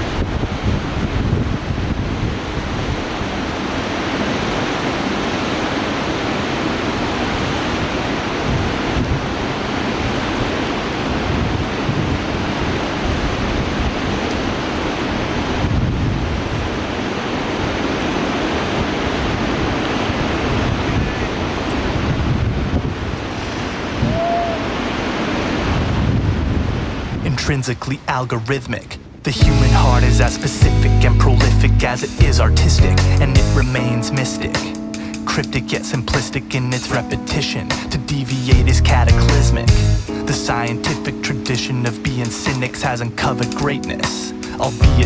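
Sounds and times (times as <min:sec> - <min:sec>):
wind buffeting microphone: 0:00.0 - 0:27.4
river water rushing: 0:01.7 - 0:28.7, 0:33.6 - 0:38.6, 0:39.3 - 0:44.9.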